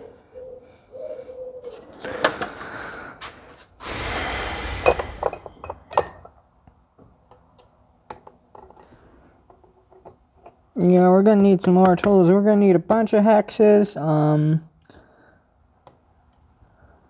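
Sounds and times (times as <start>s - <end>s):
metal tools clinking on workbench: 4.9s - 6.4s.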